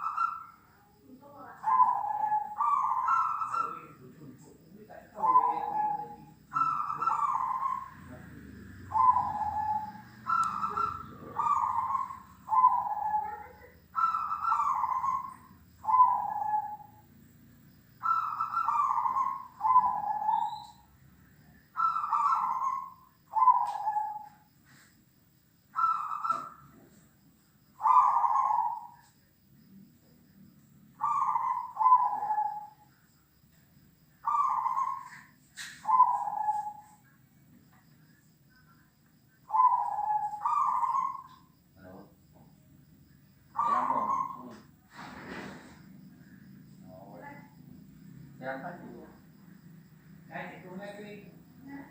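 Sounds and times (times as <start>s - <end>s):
dove cooing: 0.0s - 0.7s, 1.4s - 4.1s, 4.9s - 17.0s, 18.0s - 20.9s, 21.7s - 24.5s, 25.8s - 27.0s, 27.8s - 29.2s, 31.0s - 33.0s, 34.2s - 37.0s, 39.4s - 41.6s, 43.5s - 45.9s
faint low hum: 0.6s - 51.9s.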